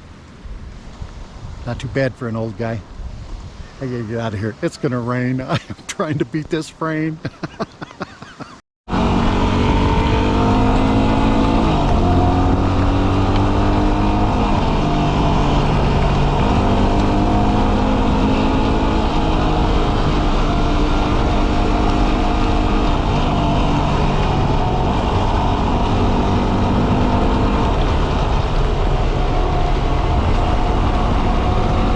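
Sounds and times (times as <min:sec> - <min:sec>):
motorcycle engine running: 0:08.9 - 0:31.9.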